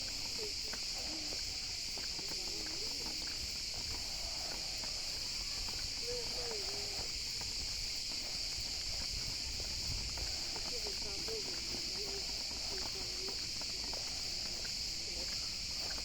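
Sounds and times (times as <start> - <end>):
faint distant voices: 0.0 - 16.0
high-pitched insect chorus: 0.0 - 16.0.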